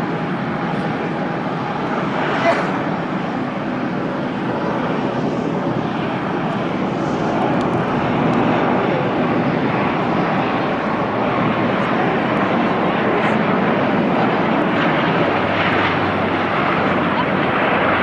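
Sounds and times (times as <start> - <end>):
turboprop airliner engines: 0.0 - 18.0.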